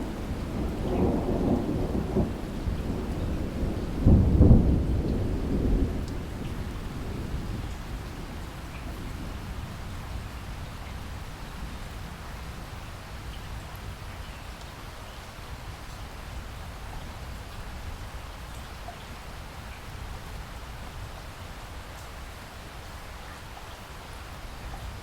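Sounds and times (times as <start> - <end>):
low thunder rumble: 0.0 - 14.0
steady rain falling: 0.0 - 25.0.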